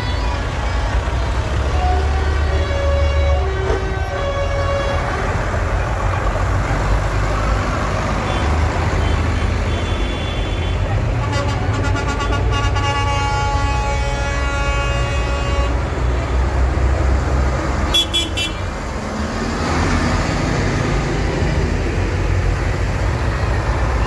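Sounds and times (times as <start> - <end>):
tractor engines rumbling: 0.0 - 24.0
vehicle horn: 1.8 - 5.2, 8.3 - 16.0, 17.9 - 18.7.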